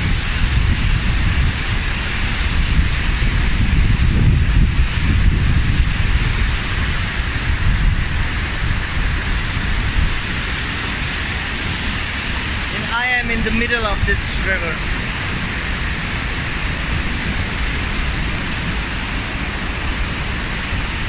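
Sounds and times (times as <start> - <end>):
stream rushing over rocks: 0.0 - 21.0
wind rumbling on microphone: 0.0 - 21.0.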